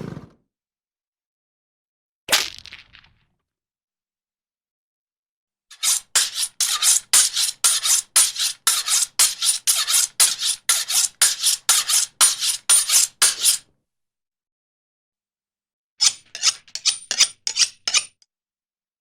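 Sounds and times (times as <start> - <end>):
rhythmic rasping scrapes: 5.7 - 13.6.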